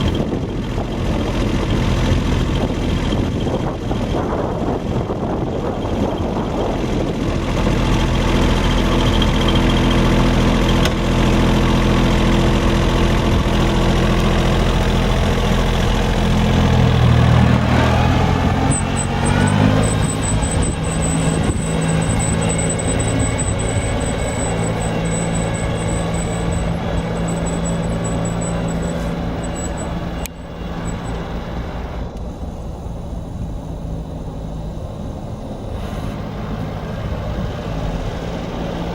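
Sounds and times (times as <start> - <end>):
tractor diesel engine running: 0.0 - 38.9
thin high whine: 15.8 - 38.9.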